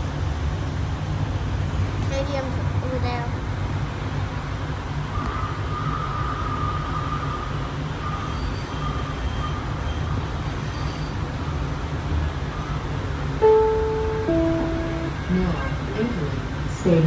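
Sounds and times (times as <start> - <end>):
light rail car rumble: 0.0 - 17.0
faint high whine: 13.4 - 15.6.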